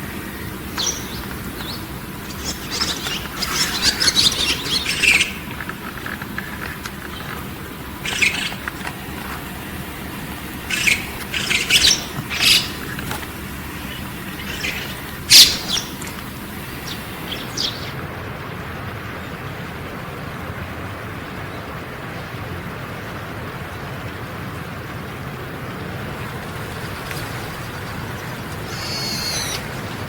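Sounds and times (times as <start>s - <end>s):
low background noise: 0.0s - 30.0s
bird high-pitched calls: 0.7s - 9.0s, 10.6s - 18.0s, 26.6s - 30.0s.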